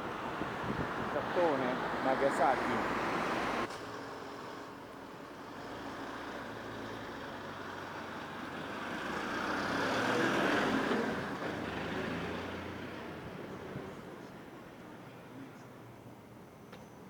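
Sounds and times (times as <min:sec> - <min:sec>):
street traffic: 0:00.0 - 0:17.0
motor vehicle passing close by: 0:08.6 - 0:13.9.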